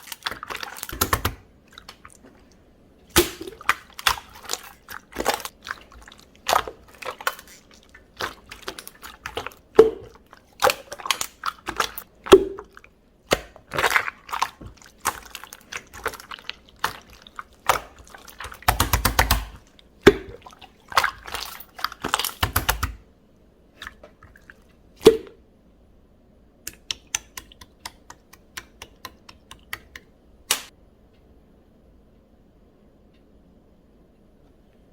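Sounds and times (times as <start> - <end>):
slime squished by hand: 3.1 - 23.0.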